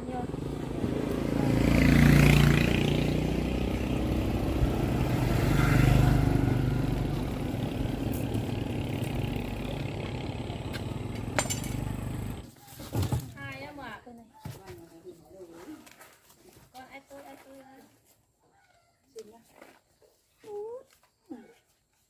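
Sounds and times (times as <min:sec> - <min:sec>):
motor vehicles passing: 0:00.0 - 0:12.5.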